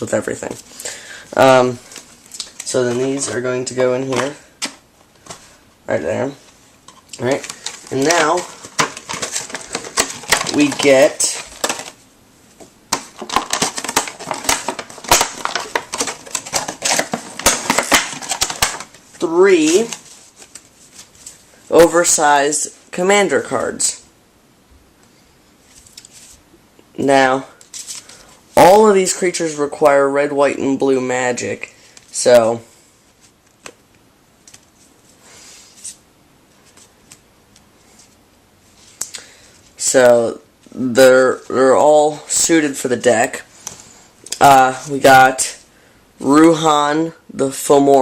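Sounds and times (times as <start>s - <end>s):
soft card rustle: 0.0s - 22.6s, 25.1s - 26.5s, 27.5s - 29.6s, 32.0s - 39.9s
packaging crinkling and rustling: 6.8s - 12.0s, 12.9s - 22.2s
cards clicking and tapping: 7.2s - 12.0s, 12.6s - 19.0s.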